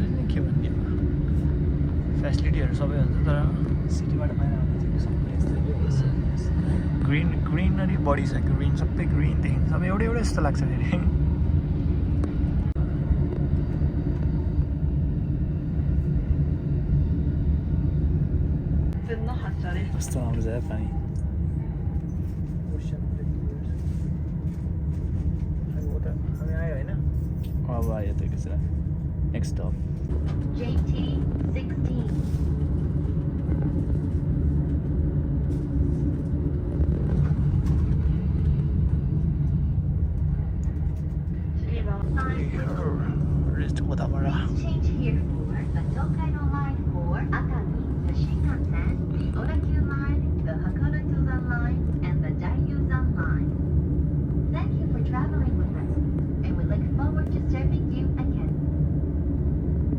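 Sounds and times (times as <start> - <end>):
train rumbling along track: 0.0 - 59.9.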